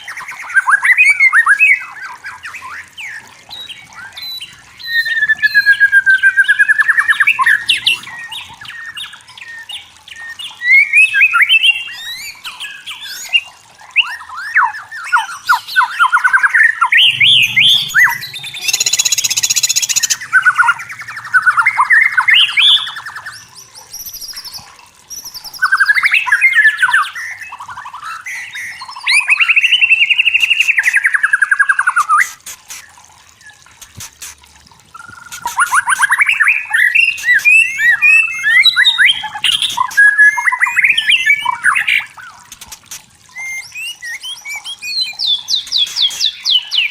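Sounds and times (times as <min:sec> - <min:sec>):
bird singing whistled phrases: 0:14.0 - 0:27.6, 0:34.9 - 0:42.4, 0:43.3 - 0:46.9
harsh buzzing bird note: 0:17.0 - 0:22.9.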